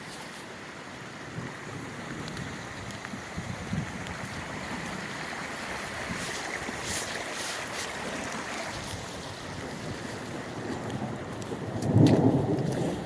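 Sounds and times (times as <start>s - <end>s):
storm wind on microphone: 1.2s - 7.0s, 8.7s - 13.0s.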